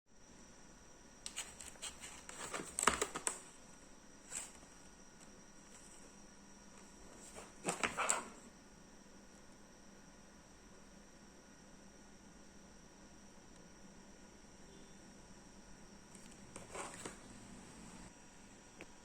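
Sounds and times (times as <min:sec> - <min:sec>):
clicks and rustles of handling: 0:01.3 - 0:03.5, 0:04.3 - 0:04.9, 0:06.8 - 0:08.4, 0:16.2 - 0:17.2.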